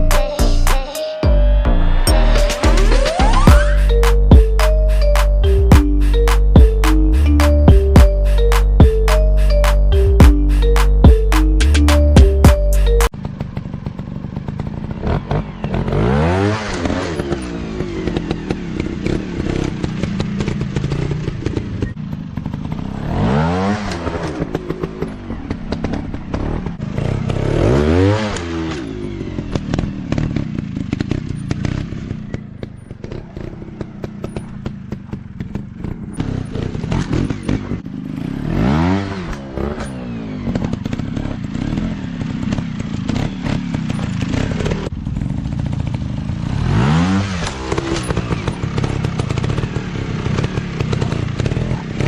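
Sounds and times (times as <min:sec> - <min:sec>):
dirt bike engines revving: 0:02.2 - 0:52.0.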